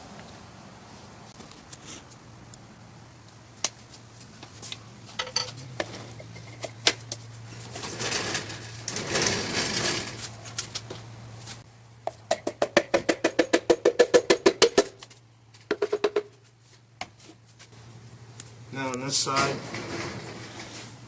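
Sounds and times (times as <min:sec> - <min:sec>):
metal scraping: 0:07.4 - 0:10.6, 0:19.2 - 0:21.0.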